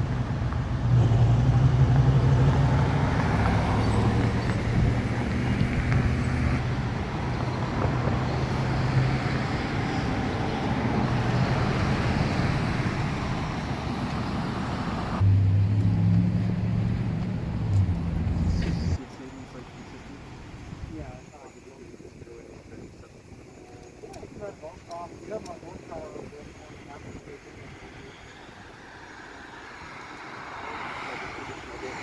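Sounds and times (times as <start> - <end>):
car engine hum: 0.0 - 20.9
tyre and road noise: 0.0 - 21.3.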